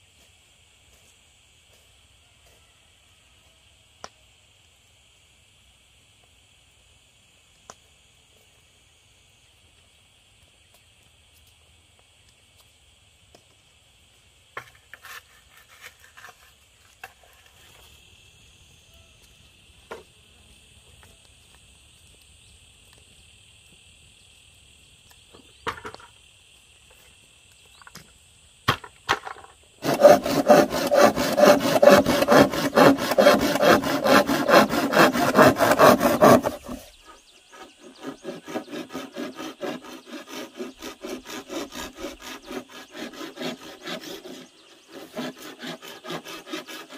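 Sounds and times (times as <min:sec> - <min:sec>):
faint insect drone: 0:00.0 - 0:46.9
strokes rubbing on wood: 0:29.8 - 0:46.9.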